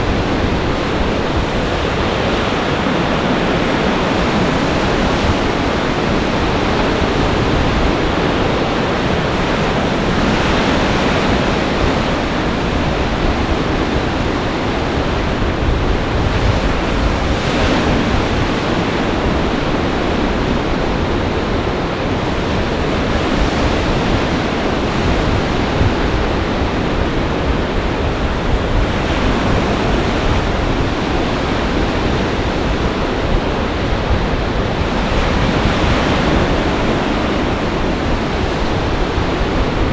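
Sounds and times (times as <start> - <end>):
gale-force wind: 0.0 - 39.9
storm waves breaking: 0.0 - 39.9
wind buffeting microphone: 0.0 - 39.9.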